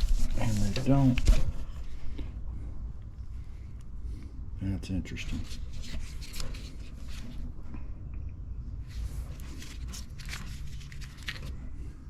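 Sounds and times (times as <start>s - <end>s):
wires rustling and scratching: 0.0s - 2.2s, 8.9s - 11.7s
steady low hum: 0.0s - 12.0s.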